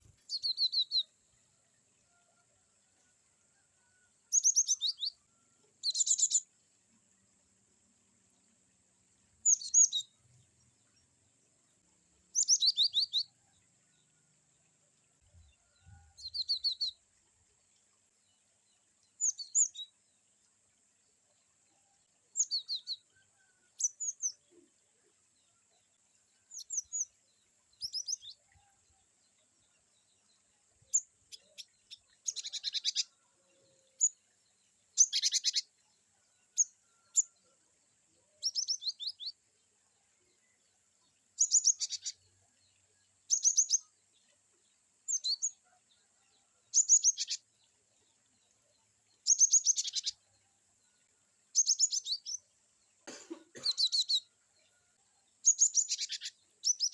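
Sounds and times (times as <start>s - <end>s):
bird chirping calls: 5.8s - 6.5s, 9.4s - 10.8s, 12.3s - 13.4s, 27.8s - 28.8s, 30.9s - 34.2s, 35.0s - 35.8s, 38.2s - 39.4s, 41.4s - 42.4s, 46.7s - 47.4s, 49.2s - 50.4s, 51.5s - 52.4s, 53.5s - 54.3s, 55.4s - 56.9s.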